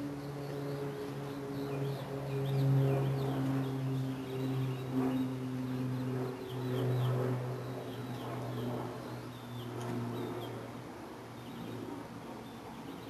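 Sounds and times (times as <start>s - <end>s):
small birds chirping: 11.3s - 13.0s.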